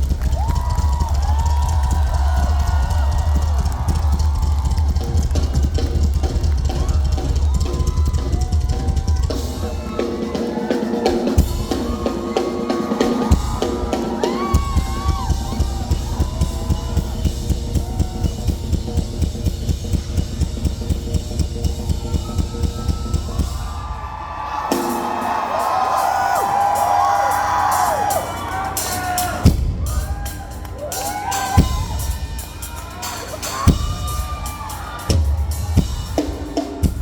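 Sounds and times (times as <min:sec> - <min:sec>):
fast bass drum strokes: 0:00.0 - 0:10.3, 0:11.2 - 0:23.9, 0:29.0 - 0:30.6, 0:31.2 - 0:37.0
rock drum kit playing: 0:00.0 - 0:24.0, 0:24.6 - 0:37.0.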